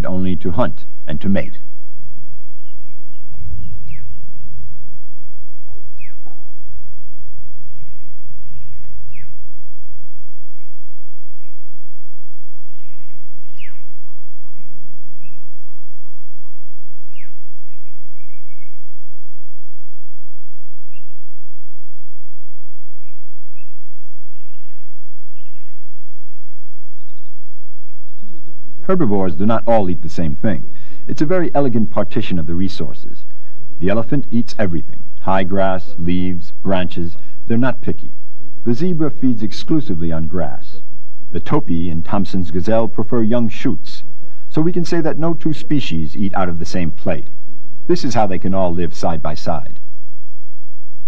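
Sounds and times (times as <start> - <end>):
birds chirping and whistling: 0.6 - 4.6, 5.6 - 9.4, 12.6 - 18.9, 20.9 - 21.3, 23.0 - 31.7.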